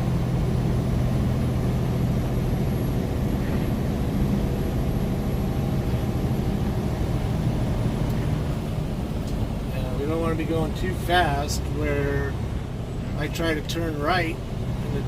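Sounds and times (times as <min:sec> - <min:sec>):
road noise: 0:00.0 - 0:15.0
truck diesel engine drone: 0:00.0 - 0:15.0.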